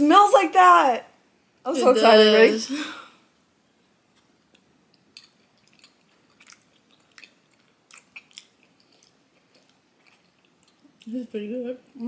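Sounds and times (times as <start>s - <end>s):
people chewing: 4.1s - 11.2s.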